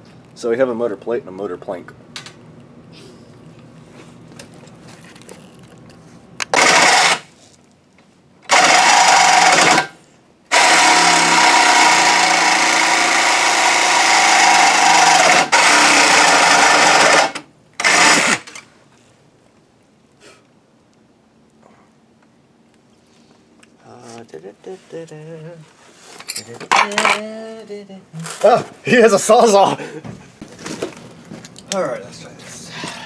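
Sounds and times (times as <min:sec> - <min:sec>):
electric power tool whining: 0:06.5 - 0:07.3, 0:08.5 - 0:18.6.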